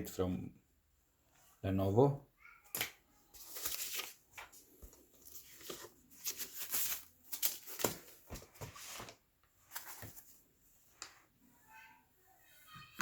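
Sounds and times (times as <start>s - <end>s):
plastic and cardboard crinkling: 2.8s - 10.4s.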